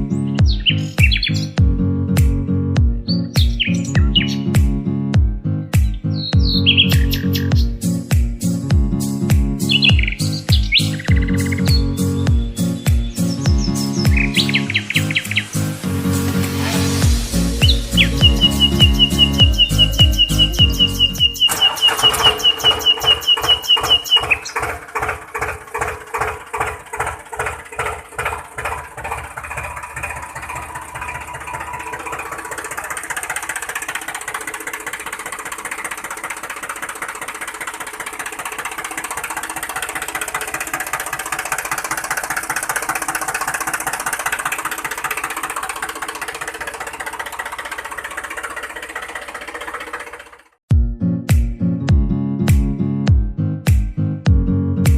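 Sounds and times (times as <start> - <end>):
high steady whine: 14.2 - 22.3
small motor clattering: 16.4 - 50.6.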